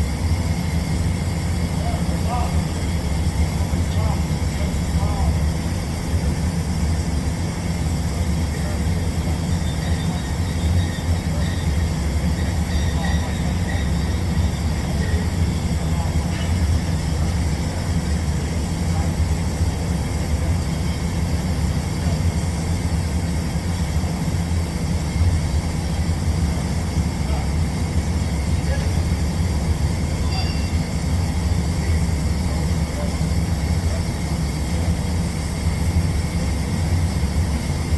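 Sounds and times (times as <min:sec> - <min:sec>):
low machine drone: 0:00.0 - 0:37.9.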